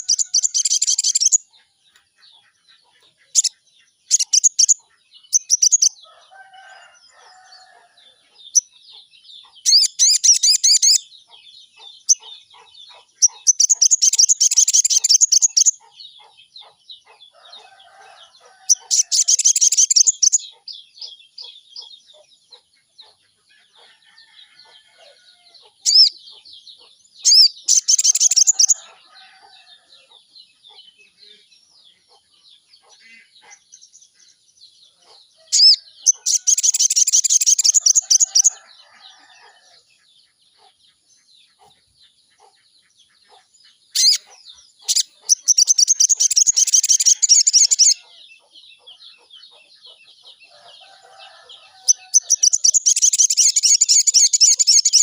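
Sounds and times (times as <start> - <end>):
faint bird chirps: 0.0 - 39.8
bird trilling: 35.5 - 38.7, 44.0 - 48.2.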